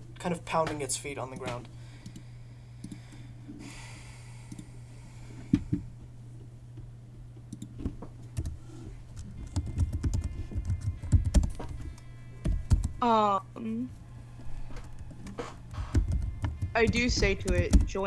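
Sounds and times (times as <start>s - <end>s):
low electrical hum: 0.0s - 18.0s
keyboard typing: 7.5s - 13.0s, 14.5s - 18.0s.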